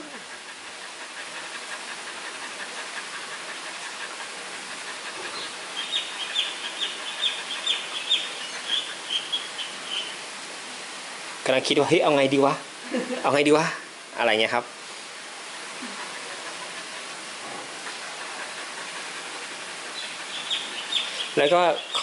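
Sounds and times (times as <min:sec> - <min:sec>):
steady background hiss: 0:00.0 - 0:22.0
bird chirping: 0:05.3 - 0:10.2, 0:20.0 - 0:22.0.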